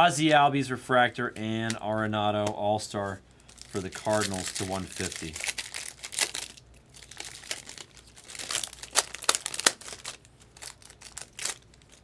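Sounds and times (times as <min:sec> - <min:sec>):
wrapper crinkling and tearing: 0:03.4 - 0:12.0.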